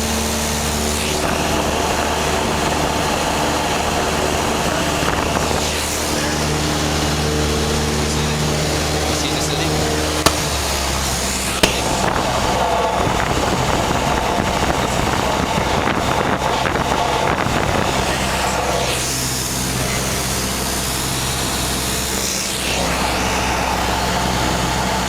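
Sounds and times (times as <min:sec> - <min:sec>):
propeller airplane engine droning: 0:00.0 - 0:25.0
sharp clicks: 0:10.3 - 0:10.6, 0:11.6 - 0:12.0.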